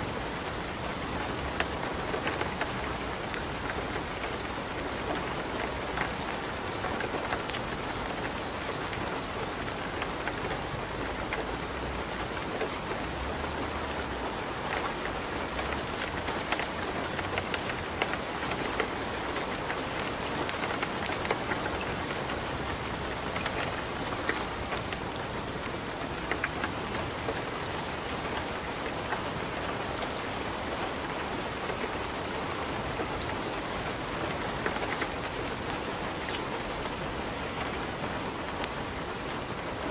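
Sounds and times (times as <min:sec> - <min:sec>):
wood fire crackling and popping: 0:15.7 - 0:29.3.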